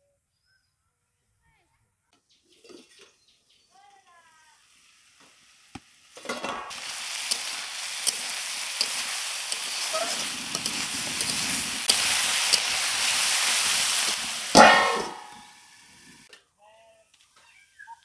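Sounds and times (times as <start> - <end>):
vegetables sizzling in oil: 3.1 - 16.3
metal spatula scraping pan: 14.6 - 15.5.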